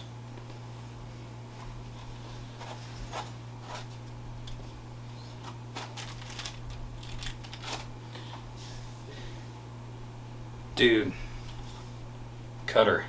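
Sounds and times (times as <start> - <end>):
low electrical hum: 0.0 - 13.0
clicks and rustles of handling: 2.6 - 7.9.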